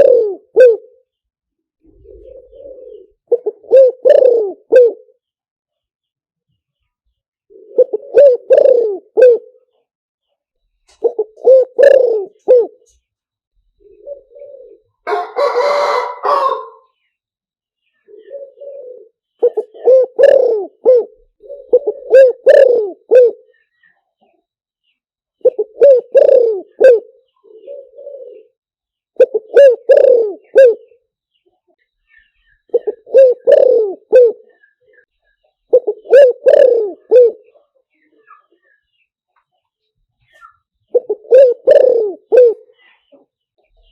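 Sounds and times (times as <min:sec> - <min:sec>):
dove cooing: 0:00.0 - 0:01.1, 0:01.8 - 0:05.2, 0:07.5 - 0:09.7, 0:10.9 - 0:13.0, 0:13.8 - 0:17.0, 0:18.0 - 0:23.8, 0:25.4 - 0:28.6, 0:29.2 - 0:31.0, 0:32.2 - 0:35.1, 0:35.7 - 0:38.6, 0:40.4 - 0:43.2.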